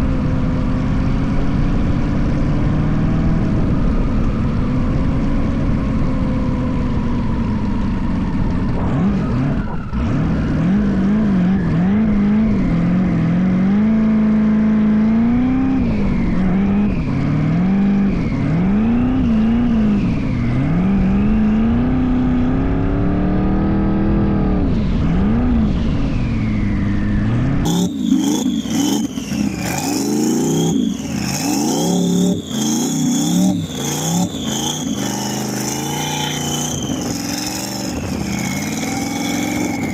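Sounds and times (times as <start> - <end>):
engine revving: 8.3 - 39.9.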